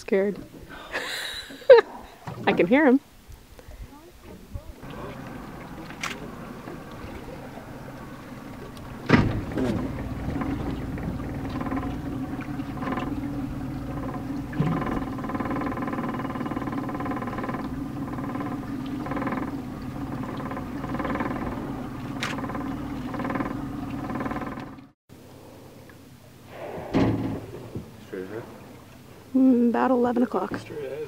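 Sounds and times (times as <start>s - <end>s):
boat engine idling: 4.1s - 25.0s.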